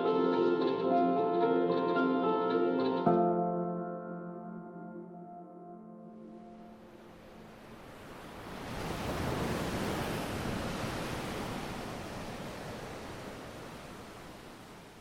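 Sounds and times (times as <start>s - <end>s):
rushing noise like surf: 6.6s - 15.0s.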